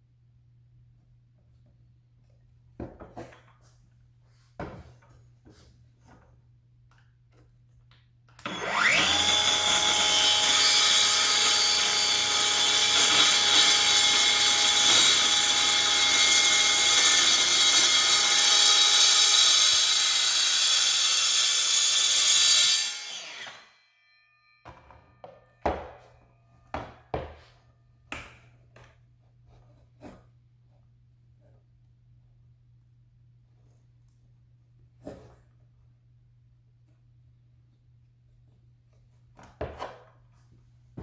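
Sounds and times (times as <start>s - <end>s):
cordless power tool whining: 8.4s - 20.9s.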